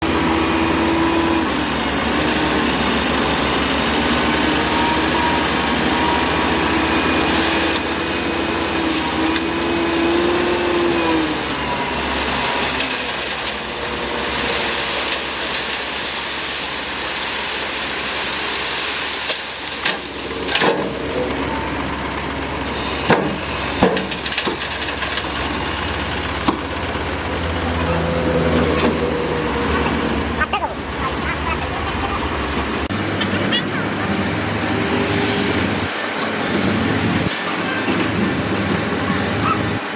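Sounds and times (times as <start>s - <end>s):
excavator engine and hydraulics: 0.0s - 39.9s
hydraulic whine: 0.2s - 31.1s.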